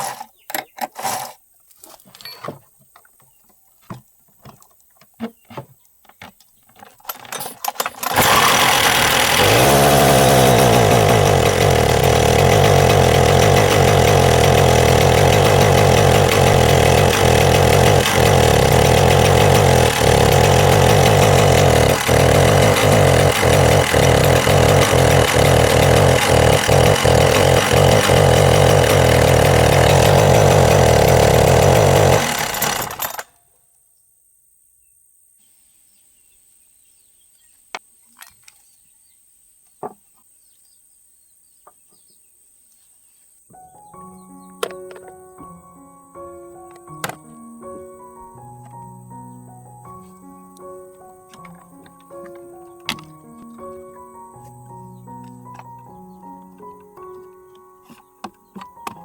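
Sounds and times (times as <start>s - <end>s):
chainsaw engine running: 7.7s - 33.3s.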